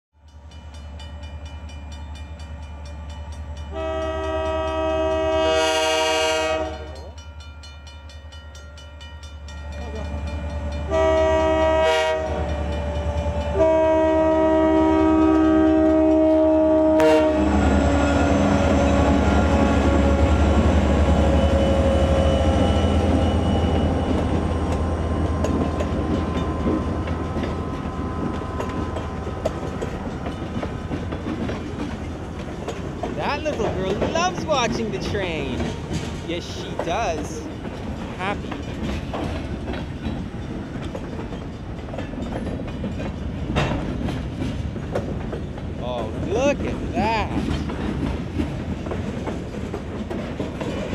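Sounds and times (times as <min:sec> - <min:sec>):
diesel locomotive engines rumbling: 0:00.2 - 0:50.9
train air horn blasts: 0:03.7 - 0:07.1, 0:10.8 - 0:20.6.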